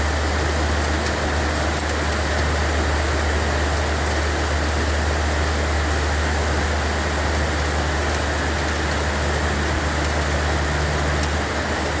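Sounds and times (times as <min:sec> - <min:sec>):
steady rain hiss: 0:00.0 - 0:12.0
raindrop ticks: 0:05.3 - 0:12.0.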